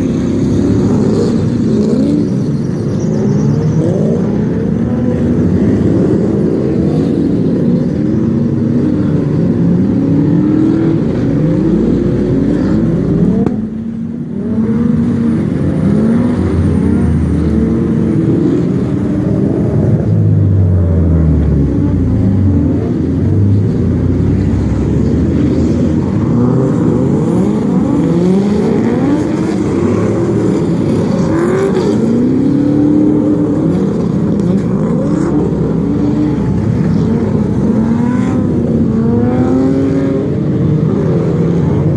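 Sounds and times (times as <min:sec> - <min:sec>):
car engine revving hard: 0:20.7 - 0:41.9.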